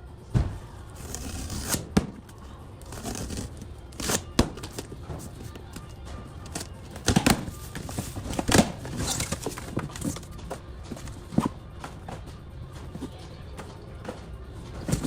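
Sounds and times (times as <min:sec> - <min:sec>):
cardboard rustle: 0:02.8 - 0:10.4
cardboard boxes thudding: 0:02.9 - 0:12.2, 0:14.8 - 0:15.0.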